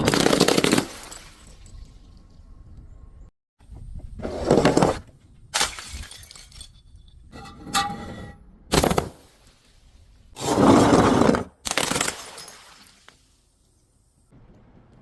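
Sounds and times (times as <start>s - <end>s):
glass bottles breaking: 5.6s - 7.0s, 11.7s - 13.1s.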